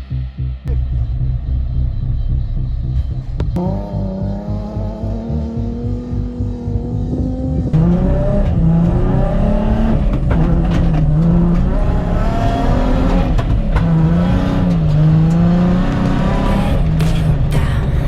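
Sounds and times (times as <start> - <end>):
car engine revving: 0.1 - 18.0.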